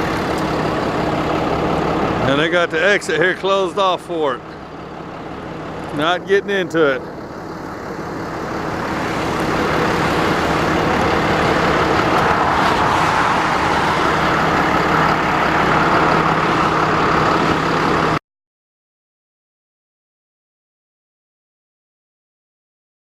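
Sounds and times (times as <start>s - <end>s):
vehicle road and engine noise: 0.0s - 18.2s.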